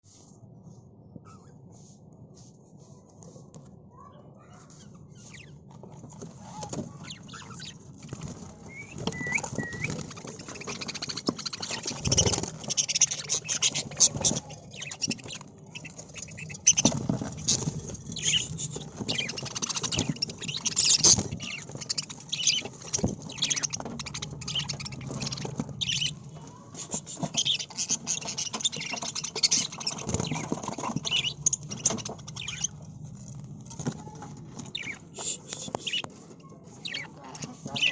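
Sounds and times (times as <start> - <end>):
budgerigars chattering: 8.8 - 26.3, 27.2 - 32.8, 36.8 - 37.9.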